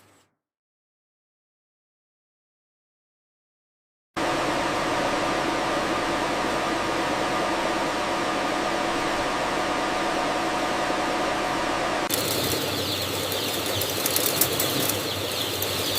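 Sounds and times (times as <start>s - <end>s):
faint steady hums: 4.2s - 15.9s
fans or ventilation running: 4.2s - 15.9s.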